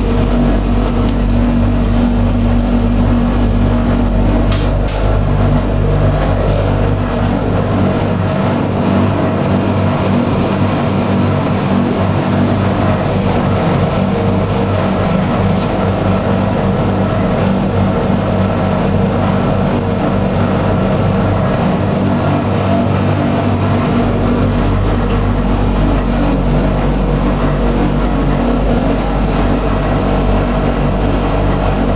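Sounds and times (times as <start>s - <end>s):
washing machine running: 0.0s - 31.9s.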